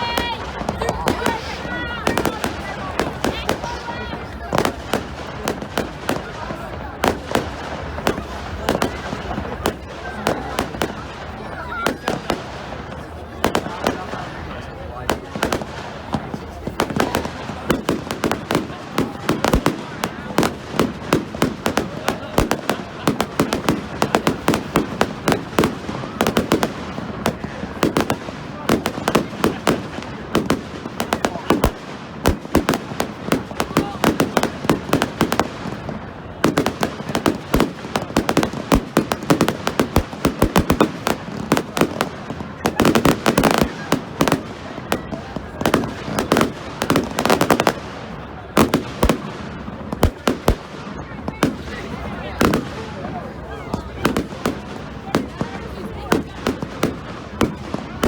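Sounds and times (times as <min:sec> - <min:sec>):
fireworks bangs: 0:00.0 - 0:58.0.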